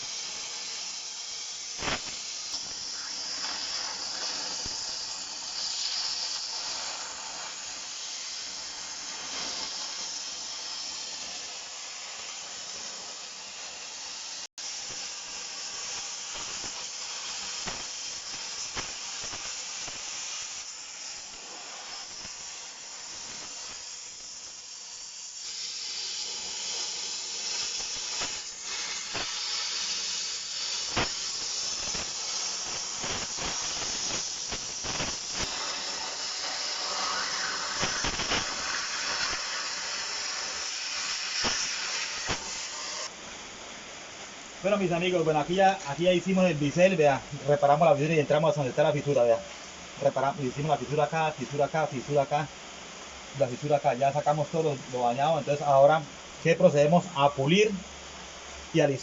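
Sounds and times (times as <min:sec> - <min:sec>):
hissing crackling gouging: 0:01.7 - 0:10.4, 0:25.3 - 0:43.1
sharp cracks: 0:01.8 - 0:05.2, 0:30.8 - 0:42.8.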